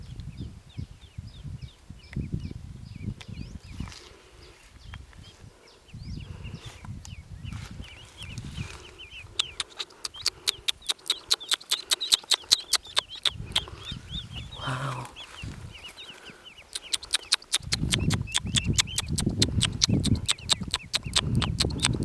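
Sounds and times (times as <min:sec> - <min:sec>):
ducklings peeping: 0:00.3 - 0:22.0
sharp clicks: 0:09.3 - 0:13.8, 0:16.7 - 0:22.0.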